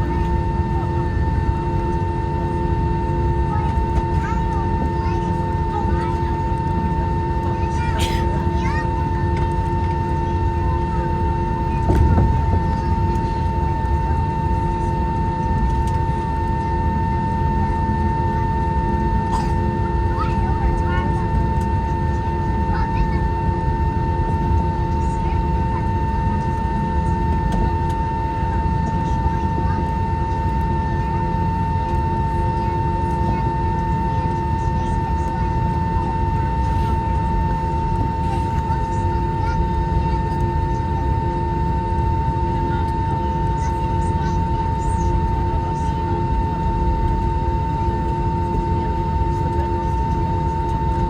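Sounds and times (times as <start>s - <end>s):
jet engine rumble and whine: 0.0s - 51.0s.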